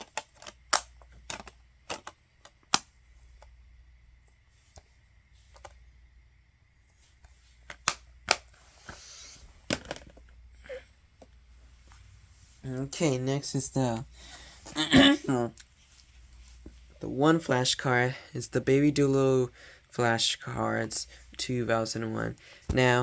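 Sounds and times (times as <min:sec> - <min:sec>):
plastic cases clicking: 0:00.0 - 0:03.5, 0:07.6 - 0:08.6, 0:09.6 - 0:10.3.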